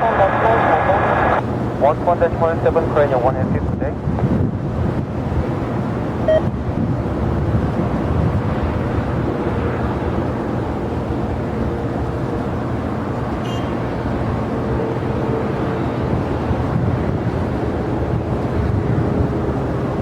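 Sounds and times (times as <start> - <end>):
faint steady whine: 0.0 - 3.2
jet engines rumbling: 0.0 - 20.0.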